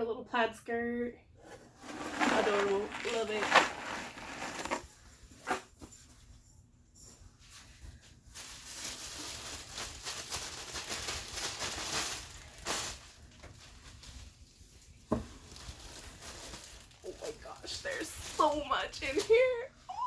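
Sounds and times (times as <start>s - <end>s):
packaging rustling and crinkling: 1.5s - 4.8s, 8.4s - 14.5s, 15.2s - 19.4s
sharp crackle of plastic: 8.4s - 14.3s, 15.4s - 18.5s.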